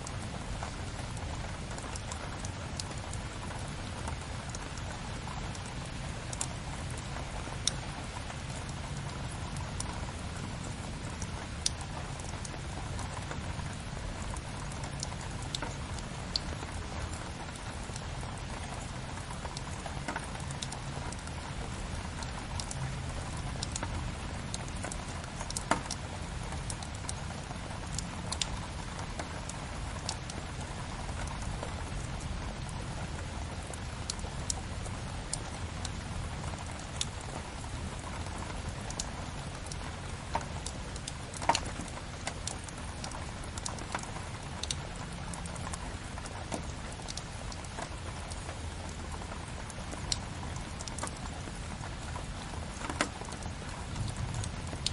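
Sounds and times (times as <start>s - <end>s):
rain patter: 0.0s - 54.9s
wood fire crackling: 35.2s - 54.9s.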